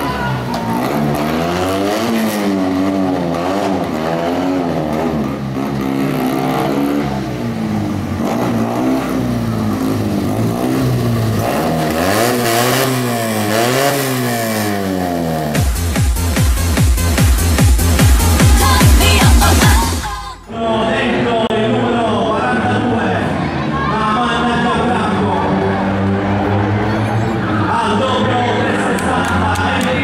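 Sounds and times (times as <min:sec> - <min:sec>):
small car engine revving: 0:00.0 - 0:20.1.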